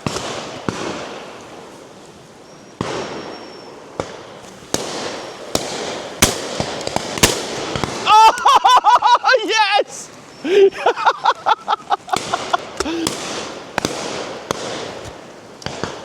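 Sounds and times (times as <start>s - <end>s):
shotgun shots echoing: 4.0s - 8.1s, 12.1s - 16.0s.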